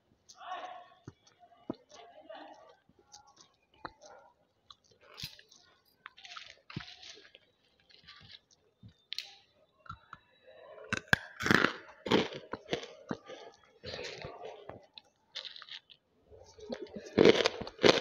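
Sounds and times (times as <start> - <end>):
crunching and chewing: 0.0 - 18.0.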